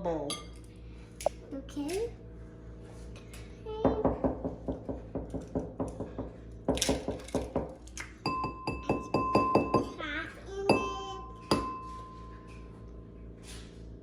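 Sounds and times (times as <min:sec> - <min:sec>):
bowl ringing tone: 0:08.2 - 0:10.0, 0:10.6 - 0:13.1.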